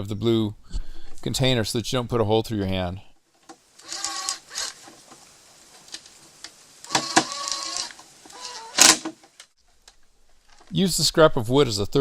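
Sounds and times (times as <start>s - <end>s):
electric drill drilling plastic: 3.8s - 4.9s, 6.8s - 9.1s.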